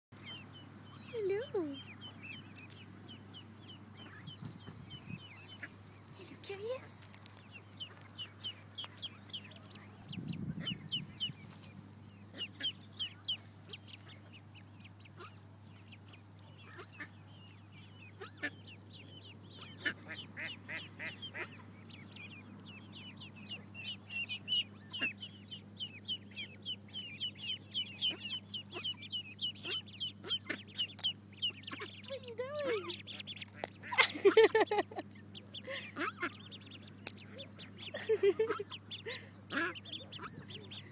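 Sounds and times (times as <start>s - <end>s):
ducklings peeping: 0.2s - 40.9s
steady low hum: 0.2s - 40.9s.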